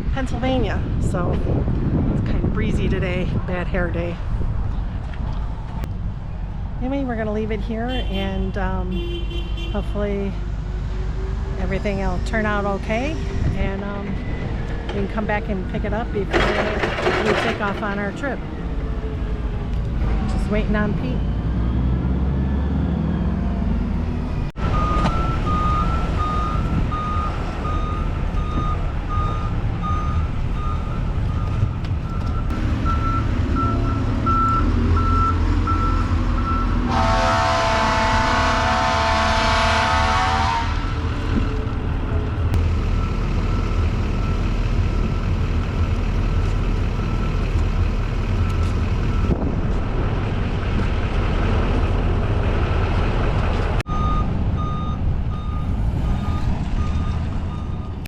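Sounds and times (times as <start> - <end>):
truck engine running: 9.8 - 39.9, 40.8 - 58.0
backup alarm beeping: 24.6 - 36.8, 53.9 - 58.0
loud horn-like tone: 36.9 - 41.1.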